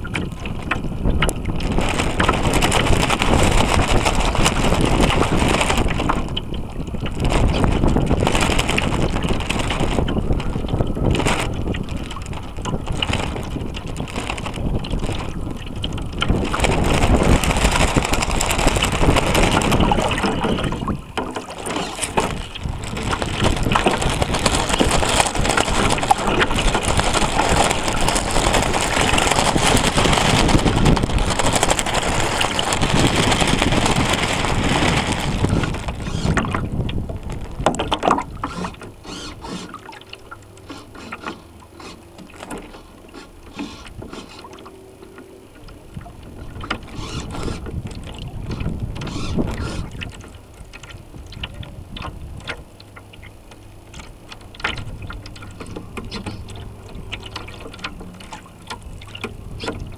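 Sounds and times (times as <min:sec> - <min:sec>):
wind on microphone: 0:00.0 - 0:42.7, 0:43.4 - 0:59.9
water lapping: 0:00.0 - 0:59.9
water rushing along boat hull: 0:00.0 - 0:59.9.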